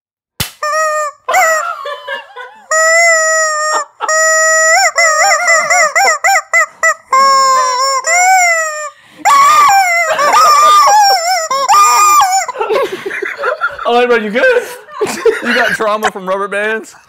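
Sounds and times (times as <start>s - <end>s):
rubber band snap: 0.4s - 0.7s
rubber chicken squawking: 0.6s - 1.8s, 2.6s - 12.8s.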